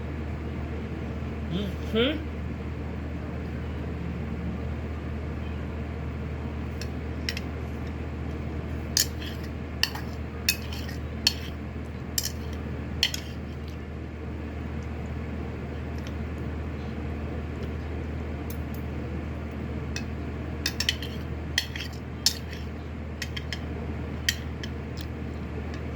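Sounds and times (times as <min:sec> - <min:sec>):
electric fan humming: 0:00.0 - 0:25.9
utensils clinking against bowl: 0:09.0 - 0:11.6, 0:12.2 - 0:13.8, 0:20.0 - 0:23.7, 0:24.3 - 0:25.1.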